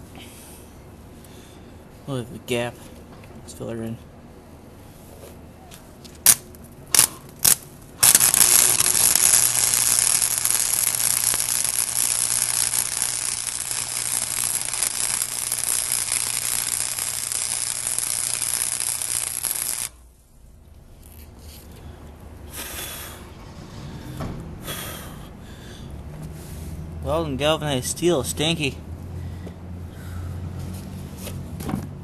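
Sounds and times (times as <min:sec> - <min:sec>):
low electrical hum: 0:00.0 - 0:32.0
arc welder crackling: 0:06.2 - 0:20.1.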